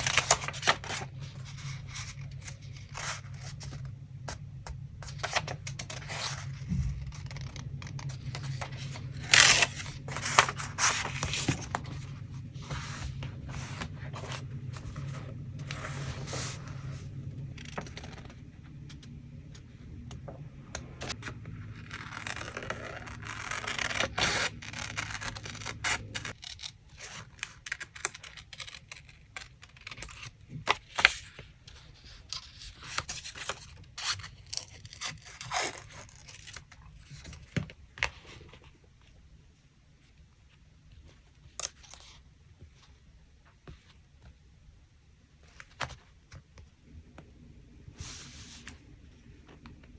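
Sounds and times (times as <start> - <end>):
steady low hum: 0.0 - 26.4, 42.2 - 49.9
paper scraping and tearing: 5.0 - 17.0, 21.1 - 30.3.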